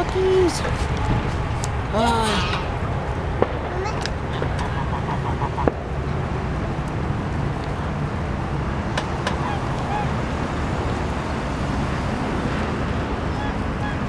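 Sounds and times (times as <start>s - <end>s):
low rumble: 0.0s - 11.4s
ducks and geese calling: 0.7s - 3.0s, 3.7s - 6.4s, 9.0s - 11.2s, 13.2s - 14.0s.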